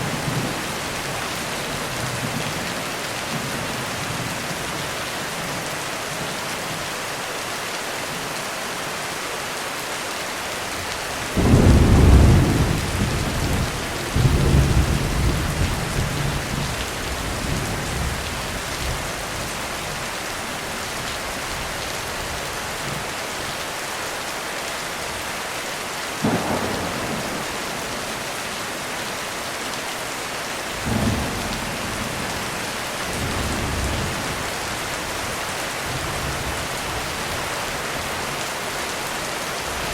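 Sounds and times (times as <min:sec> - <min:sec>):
heavy rain on a roof: 0:00.0 - 0:39.9
thunder crack and rumble: 0:11.3 - 0:19.0, 0:26.2 - 0:28.6, 0:30.7 - 0:34.8.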